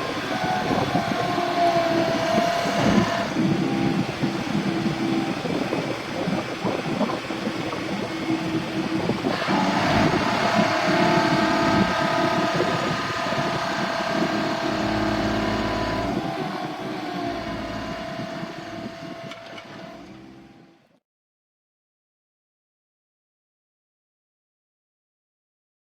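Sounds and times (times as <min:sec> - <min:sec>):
steady high whine: 0:00.0 - 0:19.0
truck engine running: 0:00.0 - 0:20.6.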